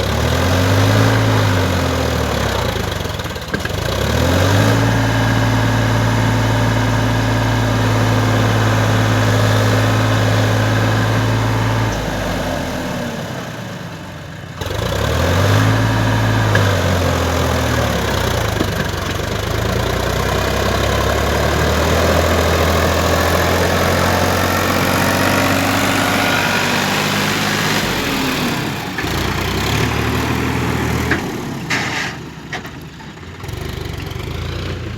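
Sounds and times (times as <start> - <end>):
heavy diesel engine running: 0.0 - 34.9.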